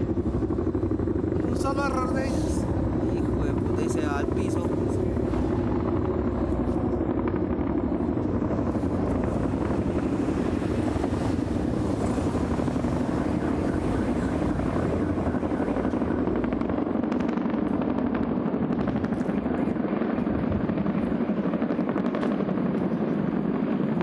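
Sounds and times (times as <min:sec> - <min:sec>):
helicopter rotor chop: 0:00.0 - 0:24.0
low engine rumble: 0:00.0 - 0:24.0.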